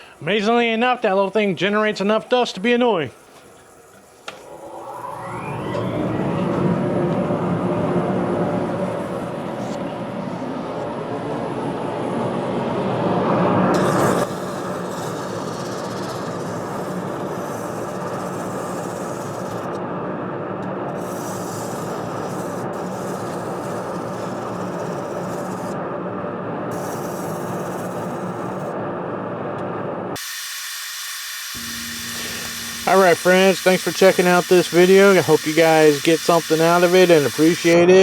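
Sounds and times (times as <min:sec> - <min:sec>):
machine hum: 0:00.0 - 0:30.2, 0:31.4 - 0:38.0
sanding wood scratch: 0:13.8 - 0:19.8, 0:21.0 - 0:25.8, 0:26.7 - 0:28.7, 0:30.2 - 0:37.8.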